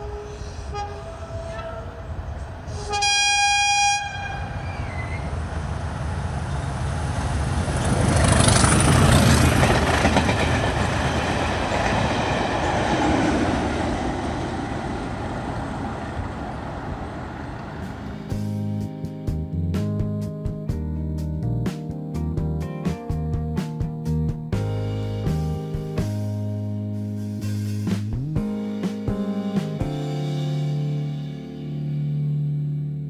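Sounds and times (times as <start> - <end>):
train horn: 0.0 - 5.3
train wheels rumbling on rails: 4.1 - 18.5.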